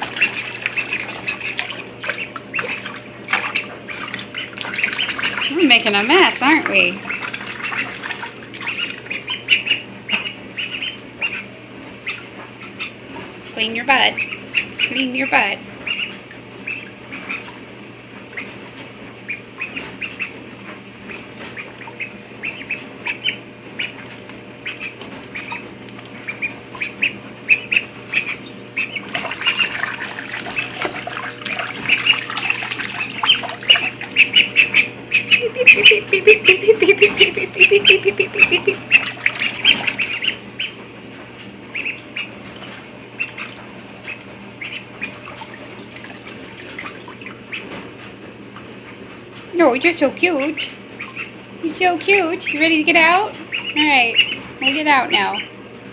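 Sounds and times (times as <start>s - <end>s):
water splashing: 0.0s - 9.4s, 28.1s - 34.7s, 37.0s - 40.7s, 44.7s - 47.7s
duckling peeping: 0.0s - 40.8s, 41.4s - 47.8s, 48.8s - 55.6s.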